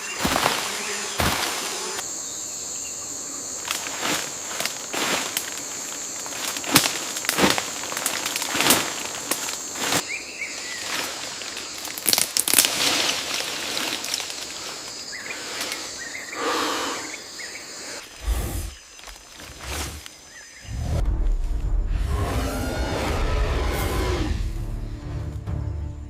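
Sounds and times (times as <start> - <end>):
sharp cracks in undergrowth: 0.0 - 1.8, 3.6 - 15.8, 18.8 - 20.5
rustling in undergrowth: 0.0 - 2.0, 3.6 - 16.2
high-pitched insect drone: 0.0 - 12.0.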